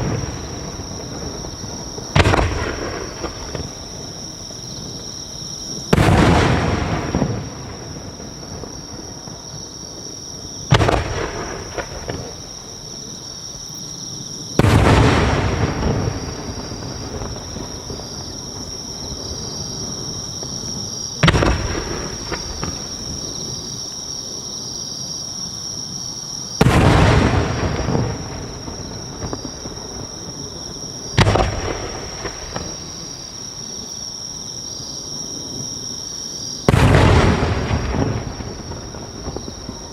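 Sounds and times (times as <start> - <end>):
firework shells booming: 0.0 - 5.0, 5.8 - 9.7, 10.6 - 12.6, 14.6 - 18.8, 19.9 - 23.5, 26.6 - 33.3, 36.6 - 39.9.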